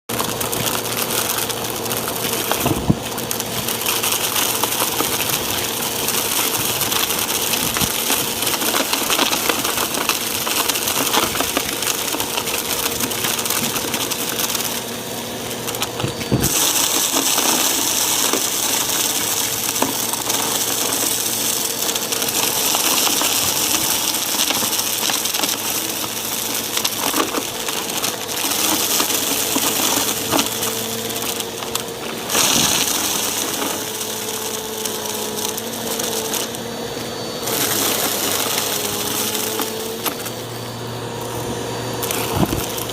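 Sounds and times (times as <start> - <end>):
upright vacuum running: 0.0 - 42.9
debris crackling through vacuum: 0.1 - 42.9.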